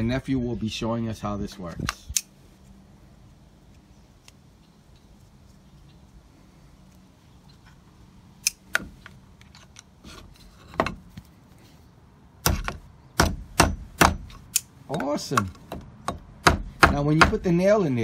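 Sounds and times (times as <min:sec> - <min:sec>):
hammer striking a nail: 0:12.4 - 0:14.4, 0:15.0 - 0:17.5.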